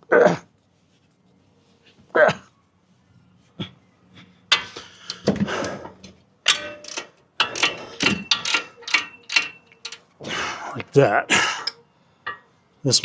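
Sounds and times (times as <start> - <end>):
metal clanks: 4.5 - 12.6
socket wrench ratchet clicking: 4.6 - 5.8, 6.5 - 10.1.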